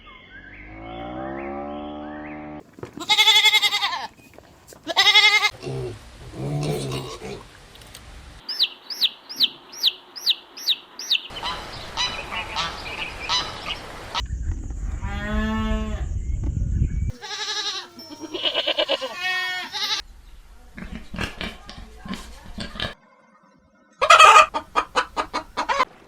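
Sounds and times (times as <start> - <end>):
honking calls: 11.3 - 14.2, 17.1 - 20.0
long drawn-out animal call: 17.2 - 20.0.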